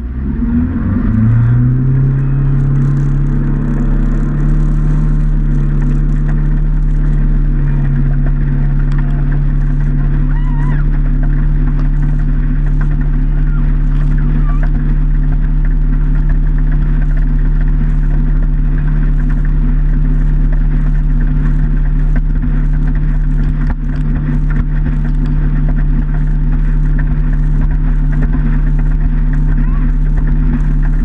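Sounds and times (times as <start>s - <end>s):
motorboat engine droning: 0.0s - 31.0s.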